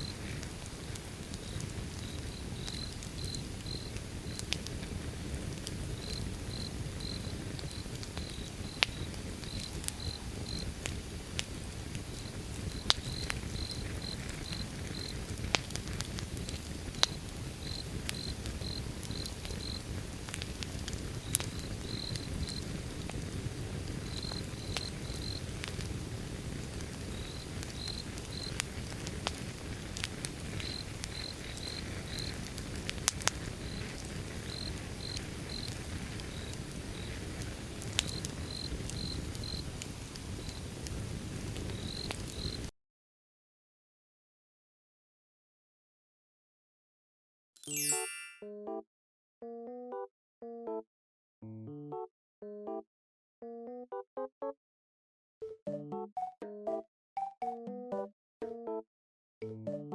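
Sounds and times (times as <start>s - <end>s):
wood fire crackling: 0.0s - 42.7s
cricket chirping: 1.4s - 3.9s, 6.0s - 10.6s.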